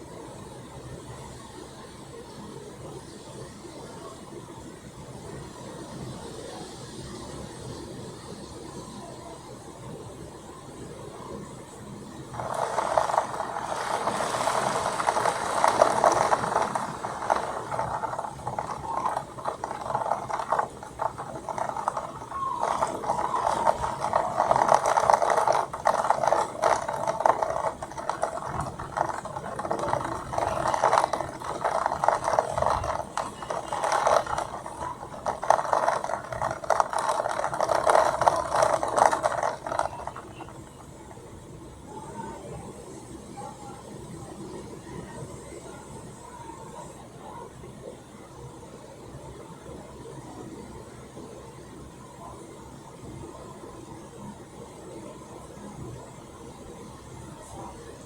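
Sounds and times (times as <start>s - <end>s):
rain hitting a hard surface: 12.3s - 40.8s.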